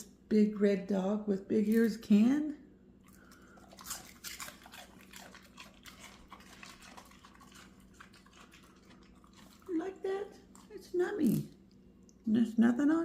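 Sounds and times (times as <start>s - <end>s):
dog chewing celery: 3.0s - 11.9s.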